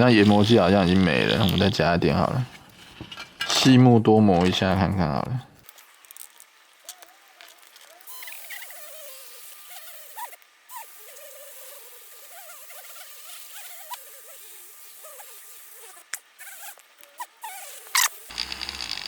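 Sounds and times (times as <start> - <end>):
rubbing hiss on plastic: 0.0 - 3.1, 5.6 - 19.0
small squeaks: 5.6 - 19.0.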